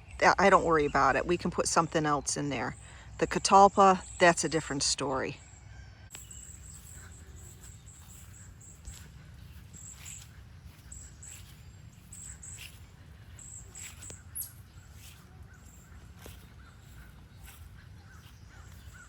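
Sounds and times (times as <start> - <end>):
wild birds chirping: 0.0 - 19.0
steady low rumble: 6.2 - 19.0.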